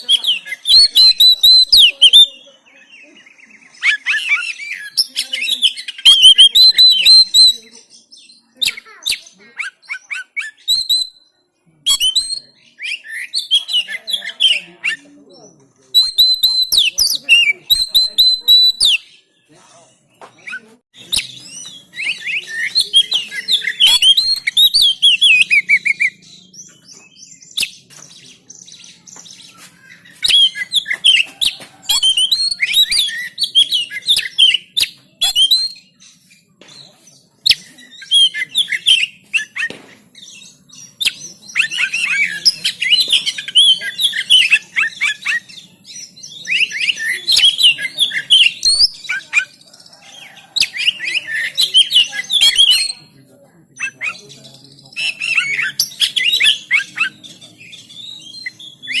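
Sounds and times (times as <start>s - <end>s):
bird singing chirps and trills: 0.0s - 59.0s.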